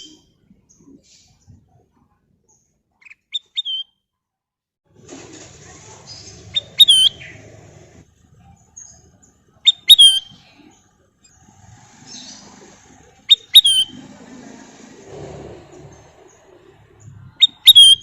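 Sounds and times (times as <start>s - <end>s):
bulbul calling: 6.1s - 7.6s, 8.4s - 14.3s, 15.9s - 18.0s.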